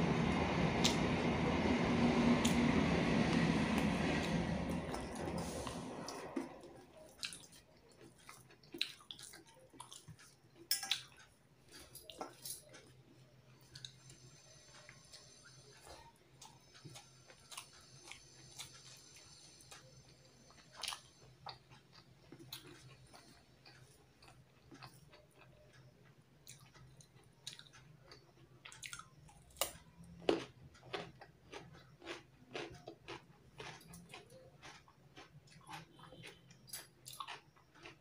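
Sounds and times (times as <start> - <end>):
steady low hum: 0.0 - 31.4
chewing and biting: 4.8 - 13.0, 20.5 - 38.0.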